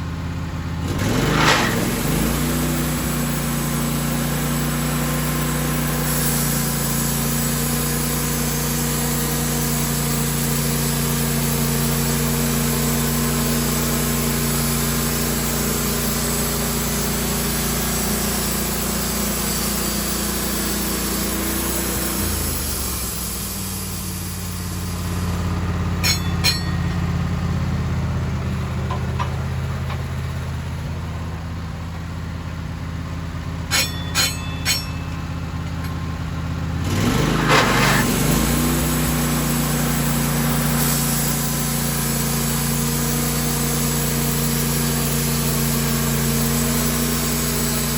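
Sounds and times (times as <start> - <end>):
sawmill engine running: 0.0 - 47.9
saw cutting log hiss: 1.2 - 26.8, 36.9 - 47.9.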